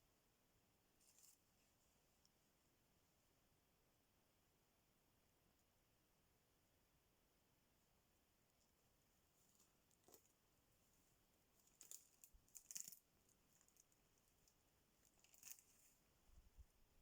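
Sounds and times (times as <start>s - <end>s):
faint crackles and rustles: 0.9s - 2.7s, 8.4s - 17.0s.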